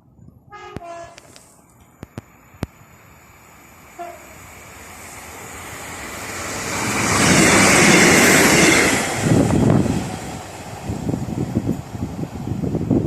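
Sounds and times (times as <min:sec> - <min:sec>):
rumble of train wheels: 0:00.0 - 0:13.0
train passing at speed: 0:00.5 - 0:13.0.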